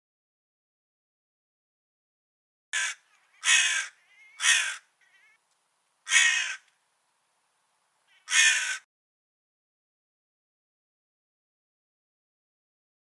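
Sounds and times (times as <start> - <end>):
crow cawing: 2.8 - 5.4, 6.0 - 6.7, 8.1 - 8.9.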